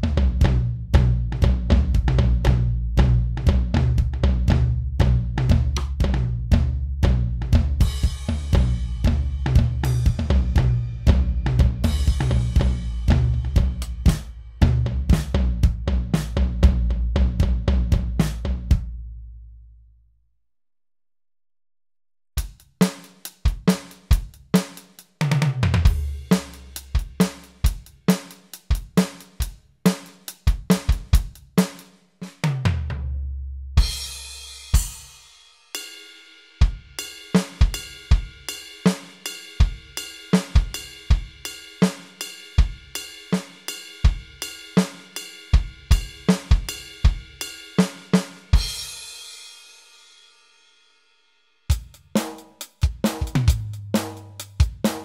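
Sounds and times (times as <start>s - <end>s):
electronic drum beat: 5.6s - 16.8s, 51.7s - 55.0s.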